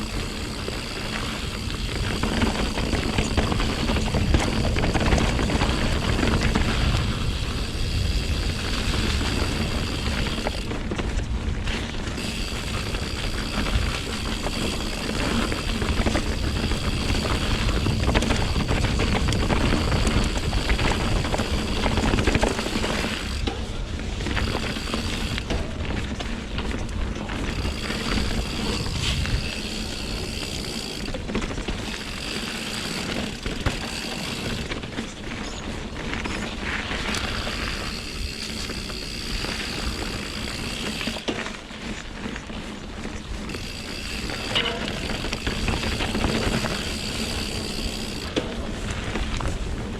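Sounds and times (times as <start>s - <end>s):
wind on microphone: 0.0s - 22.4s, 27.5s - 30.9s
bike tyres rolling and rattling: 0.0s - 49.9s.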